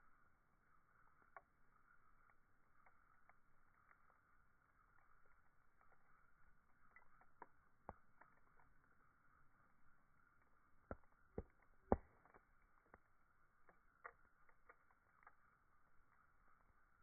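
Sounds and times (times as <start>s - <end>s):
campfire crackling: 0.1s - 17.0s.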